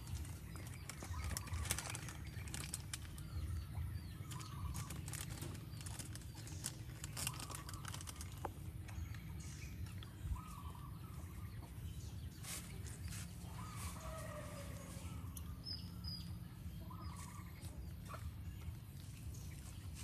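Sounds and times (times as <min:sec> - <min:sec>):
faint bird calls: 0:00.0 - 0:18.8
low outdoor rumble: 0:00.0 - 0:20.0.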